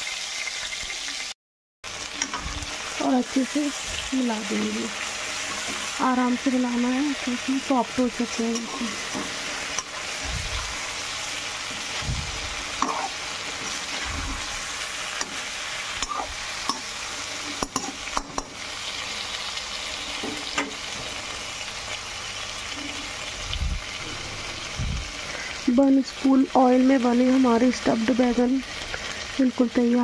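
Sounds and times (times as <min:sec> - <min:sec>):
oil sizzling in a pan: 0:00.0 - 0:30.0
metal spatula scraping and clicking: 0:08.5 - 0:10.1, 0:12.8 - 0:14.4, 0:16.0 - 0:16.9, 0:17.5 - 0:18.5.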